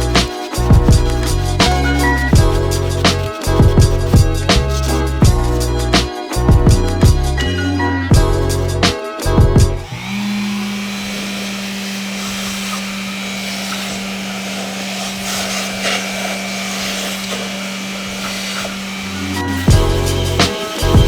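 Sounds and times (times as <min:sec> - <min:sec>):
electric tool motor running: 0:00.0 - 0:05.6, 0:09.8 - 0:21.0.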